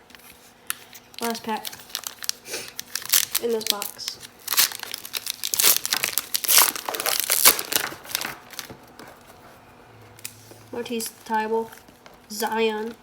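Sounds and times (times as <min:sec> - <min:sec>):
card pack wrapper crinkling and tearing: 0:00.1 - 0:09.2.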